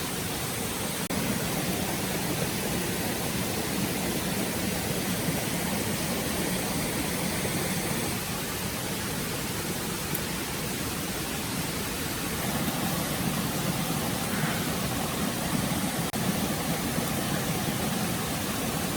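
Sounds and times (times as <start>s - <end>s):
forest stream rushing: 0.0s - 18.9s.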